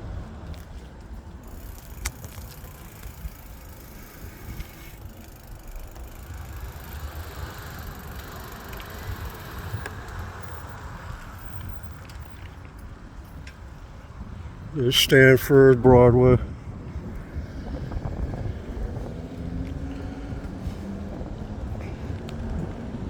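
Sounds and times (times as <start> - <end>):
street traffic: 0.0 - 23.0
wind on microphone: 15.7 - 23.0.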